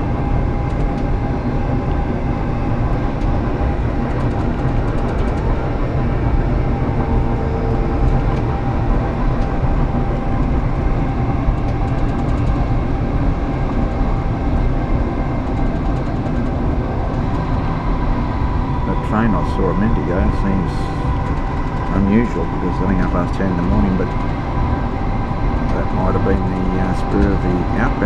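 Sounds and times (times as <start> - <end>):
faint steady whine: 0.0 - 28.0
train wheels rumbling on rail: 0.0 - 28.0.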